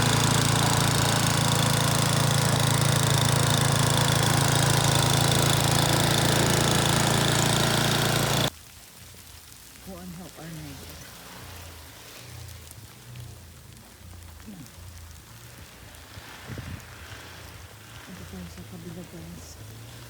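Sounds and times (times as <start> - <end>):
snowblower engine running: 0.0 - 8.5, 9.9 - 20.0.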